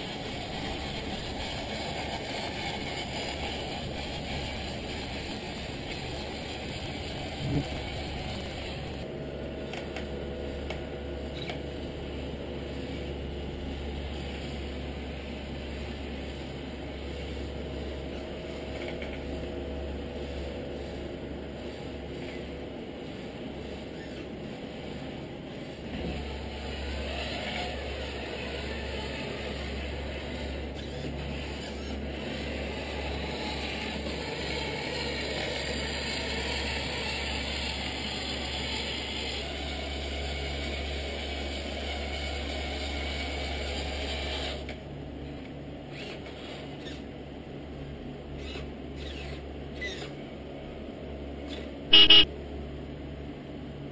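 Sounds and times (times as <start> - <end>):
electric motor and gear grinding: 0.0 - 9.1
toy truck mechanical hum: 0.0 - 9.1, 23.8 - 25.0, 25.7 - 47.1, 48.4 - 50.2, 51.4 - 52.3.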